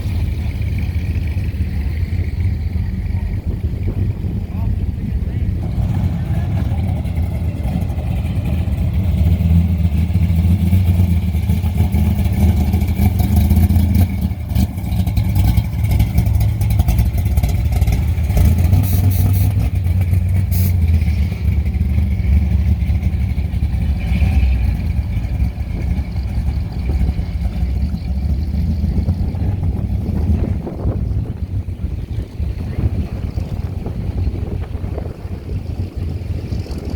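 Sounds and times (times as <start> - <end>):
car engine running: 0.0 - 36.9.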